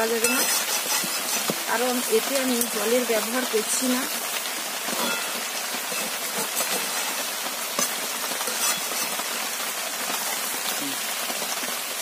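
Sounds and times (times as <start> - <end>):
metal spatula scraping pan: 0.0 - 2.8, 4.9 - 9.6
chicken sizzling in oil: 0.0 - 12.0.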